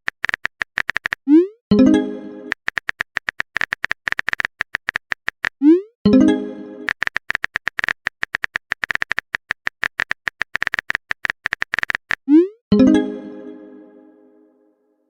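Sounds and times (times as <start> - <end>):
phone keyboard typing clicks: 0.0 - 1.2, 2.5 - 5.6, 6.8 - 12.3.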